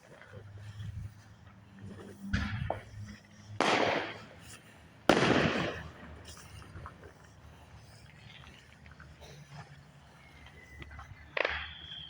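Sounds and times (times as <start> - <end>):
fireworks bangs: 2.1 - 6.7, 11.3 - 12.0.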